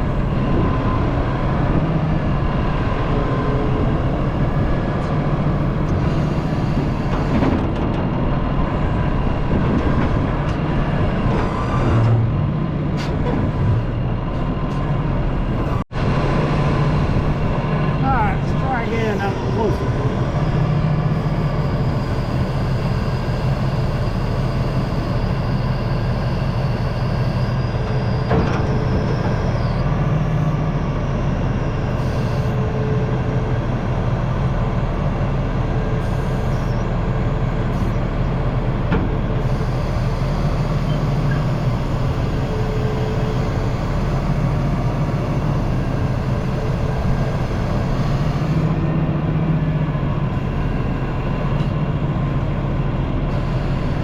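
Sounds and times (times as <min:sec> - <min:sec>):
diesel engine running: 0:00.0 - 0:54.0
faint hydraulic whine: 0:18.6 - 0:52.6.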